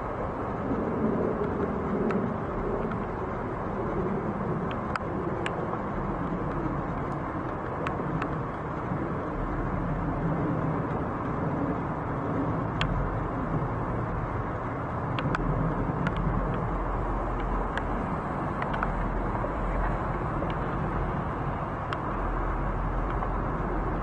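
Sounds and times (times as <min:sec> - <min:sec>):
distant engines rumbling: 0:00.0 - 0:24.0.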